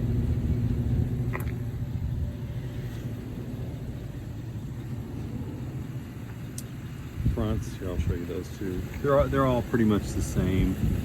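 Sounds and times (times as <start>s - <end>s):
bus engine idling: 0.0s - 11.0s.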